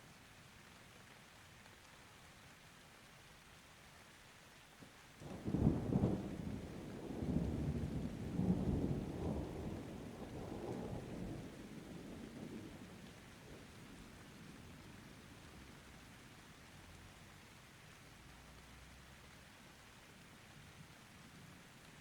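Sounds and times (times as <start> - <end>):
light rain: 0.0 - 22.0
thunder rumbling: 5.5 - 12.8.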